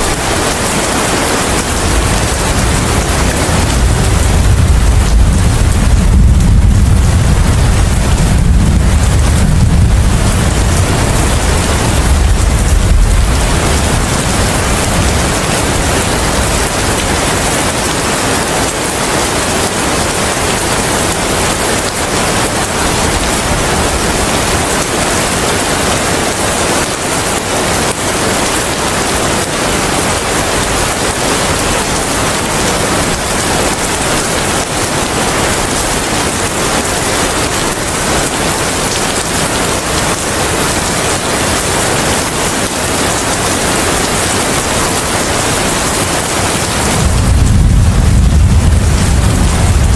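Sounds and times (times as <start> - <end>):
heavy rain: 0.0 - 49.9
low rumble: 1.9 - 16.5, 46.9 - 49.9.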